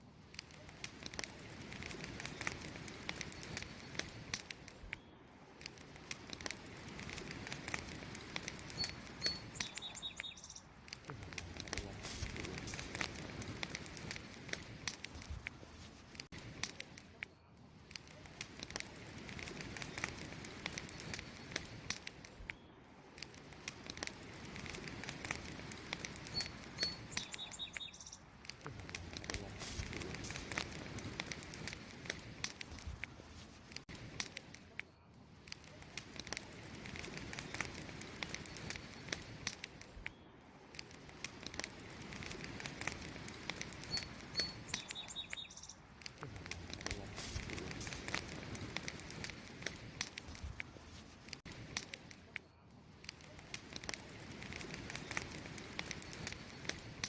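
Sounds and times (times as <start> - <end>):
campfire crackling and popping: 0.0 - 57.0
short high bird chirp: 8.8 - 10.7, 26.3 - 28.2, 43.9 - 45.8.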